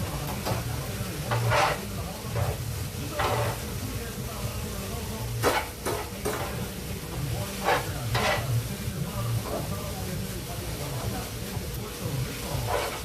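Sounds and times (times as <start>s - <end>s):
vegetables sizzling in frying pan: 0.0s - 13.0s
utensil scraping pan: 0.2s - 3.8s, 5.4s - 8.7s, 12.4s - 13.0s.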